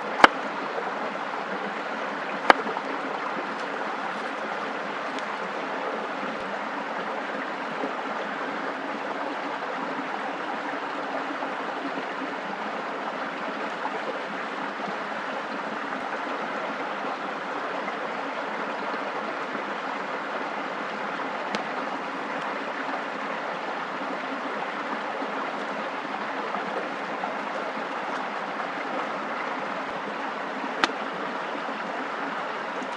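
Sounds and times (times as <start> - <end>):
water rushing: 0.0 - 11.6, 20.1 - 32.9.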